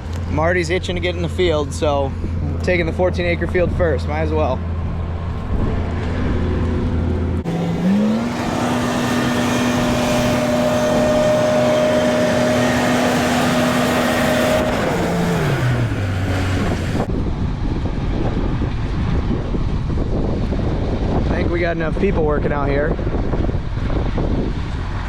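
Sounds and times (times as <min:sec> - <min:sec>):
farm machine engine running: 0:06.0 - 0:17.1.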